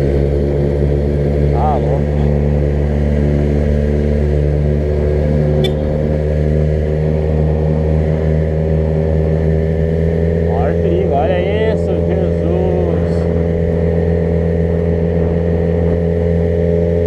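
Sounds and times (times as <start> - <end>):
car engine running steadily: 0.0 - 17.0.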